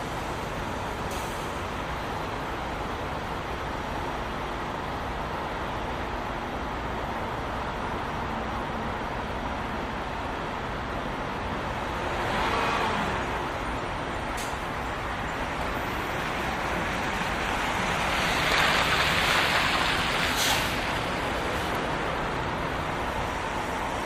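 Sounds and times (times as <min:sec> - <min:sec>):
road traffic noise: 0:00.0 - 0:24.0.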